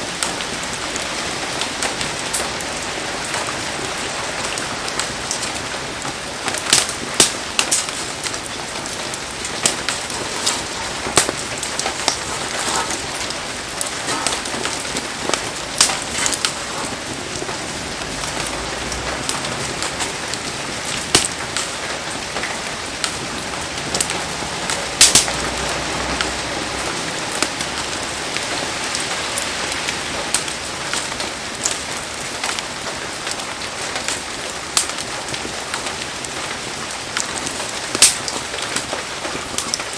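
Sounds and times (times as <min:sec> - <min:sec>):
heavy rain falling: 0:00.0 - 0:39.9
sharp taps and pops: 0:09.6 - 0:13.1, 0:21.1 - 0:21.7.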